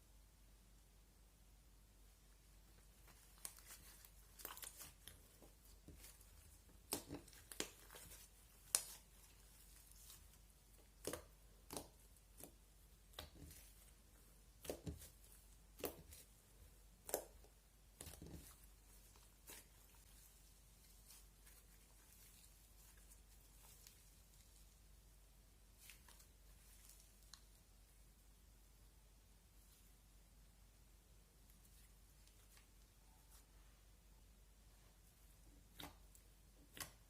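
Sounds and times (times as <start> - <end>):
slime popping and crackling: 3.2 - 24.1.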